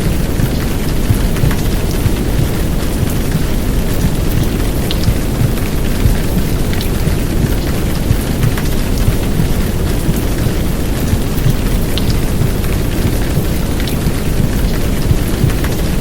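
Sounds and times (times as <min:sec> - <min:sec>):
heavy rain downpour: 0:00.0 - 0:16.0
white noise: 0:00.0 - 0:16.0
womb sounds low rumble: 0:00.1 - 0:13.6.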